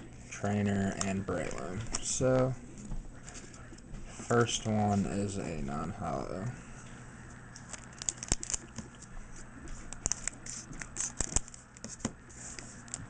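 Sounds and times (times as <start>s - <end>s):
cards clicking and snapping: 7.6s - 9.0s, 9.7s - 13.0s
foil wrapper crinkling: 7.6s - 9.0s, 9.8s - 11.8s.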